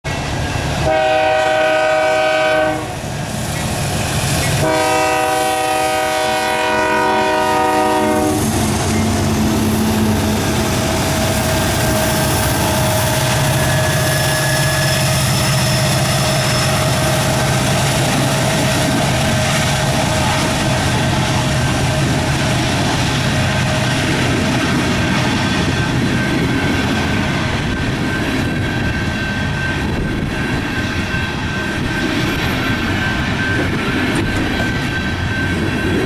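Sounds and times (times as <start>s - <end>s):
locomotive horn blasts: 0.8s - 3.0s, 4.6s - 8.6s.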